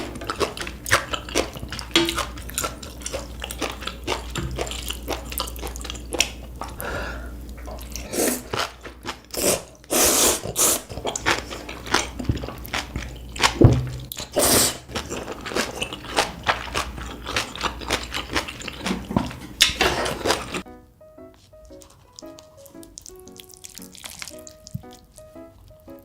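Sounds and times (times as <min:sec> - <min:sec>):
noodles being slurped: 0:00.0 - 0:20.6, 0:21.4 - 0:26.0
wet chewing: 0:00.0 - 0:20.7, 0:21.3 - 0:26.0.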